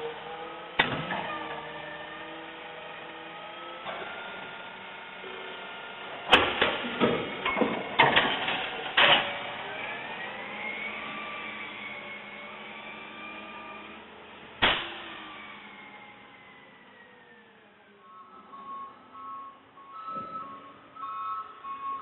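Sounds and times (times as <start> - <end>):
garbage truck whine: 0.0 - 22.0
metal clanks and bangs: 6.3 - 9.4
loud bang: 14.6 - 15.1.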